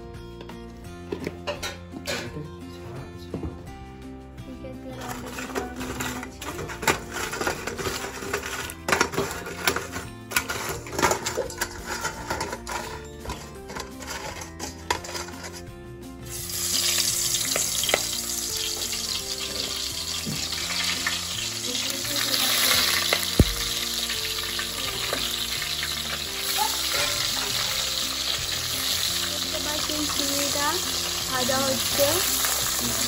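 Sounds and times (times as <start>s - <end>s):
prawns sizzling in hot oil: 16.2s - 33.0s.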